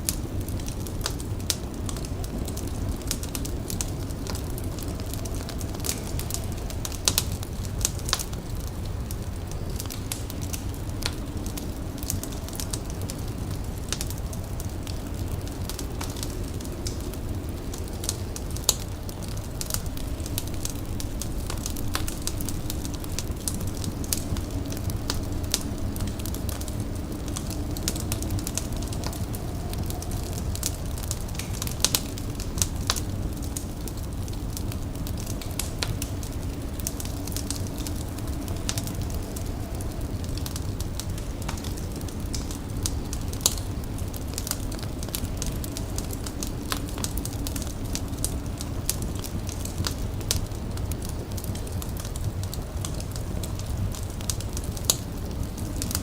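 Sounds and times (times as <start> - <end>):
low rumble of burning: 0.0 - 56.0
wood fire crackling: 0.0 - 56.0.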